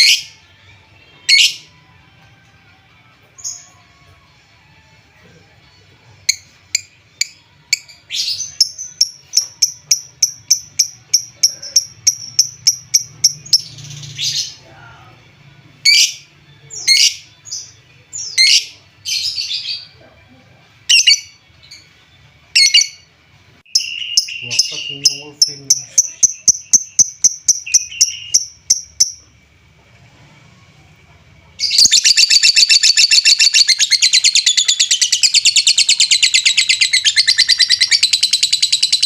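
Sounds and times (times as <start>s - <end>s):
lovebird chirping and calling: 1.3s - 1.7s, 6.3s - 14.6s, 15.9s - 17.6s, 18.2s - 19.9s, 20.9s - 21.8s, 23.7s - 29.2s, 31.6s - 39.0s.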